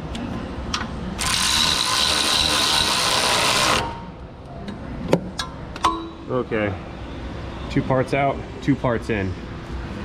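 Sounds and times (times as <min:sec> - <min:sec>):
power ratchet running: 0:01.2 - 0:04.0.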